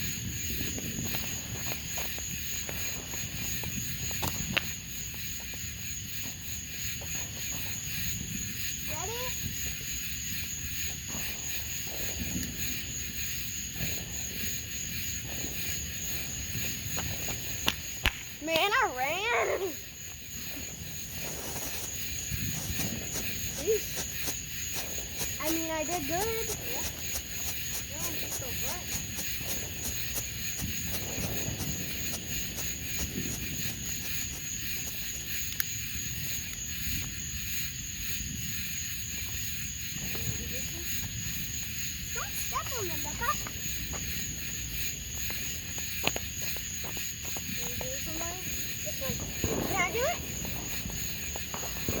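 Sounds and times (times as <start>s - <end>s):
wind on microphone: 0.0s - 5.4s, 19.8s - 37.0s, 39.8s - 52.0s
night insects chirring: 0.0s - 52.0s.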